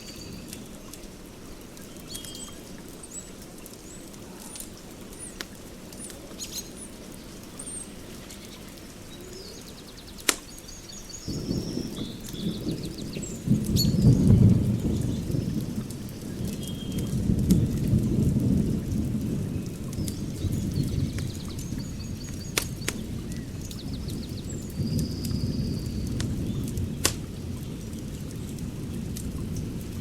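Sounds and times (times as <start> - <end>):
rain hissing: 0.0 - 30.0
birds chirping: 1.8 - 17.7, 19.4 - 28.6
sharp crack: 10.2 - 10.6, 22.2 - 23.1, 26.1 - 27.4
low rumble of thunder: 11.1 - 30.0.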